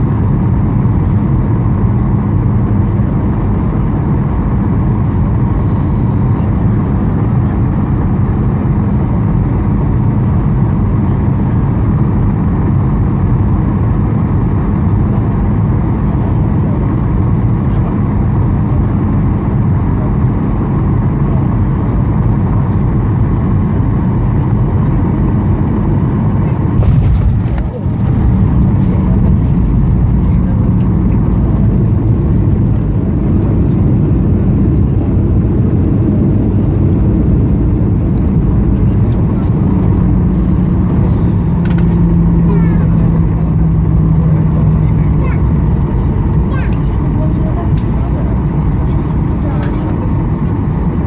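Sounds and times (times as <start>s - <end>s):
airplane cabin drone: 0.0s - 51.0s.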